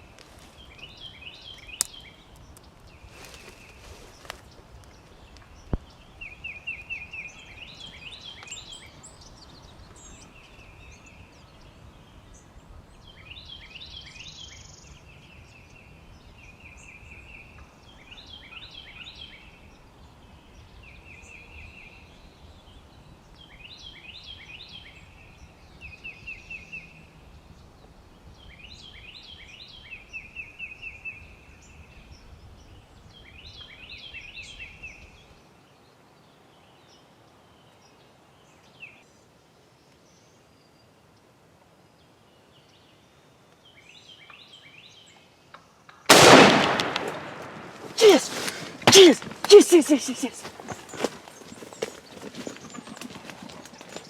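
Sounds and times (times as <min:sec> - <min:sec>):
faint outdoor background: 0:00.0 - 0:54.0
songbird singing with trill: 0:00.6 - 0:27.7, 0:28.3 - 0:39.2.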